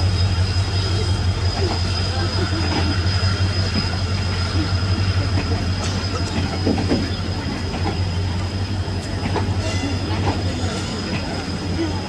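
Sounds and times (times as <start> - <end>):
train rolling past: 0.0 - 12.0
wheels clacking over rail joints: 5.0 - 12.0.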